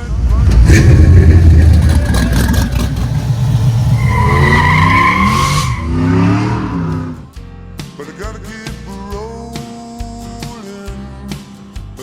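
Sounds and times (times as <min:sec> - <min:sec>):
car engine revving: 0:00.0 - 0:07.3
high squeal: 0:03.4 - 0:07.1.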